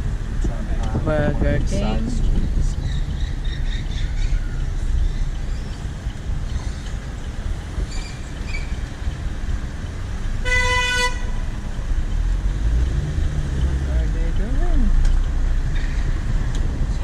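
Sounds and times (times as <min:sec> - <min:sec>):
car driving rumble: 0:00.0 - 0:17.0
vehicle horn: 0:10.4 - 0:11.4.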